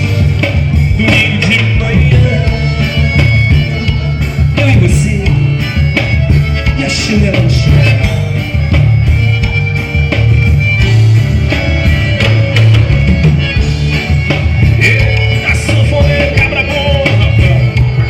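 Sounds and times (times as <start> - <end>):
band music with bass and percussion: 0.0 - 18.0.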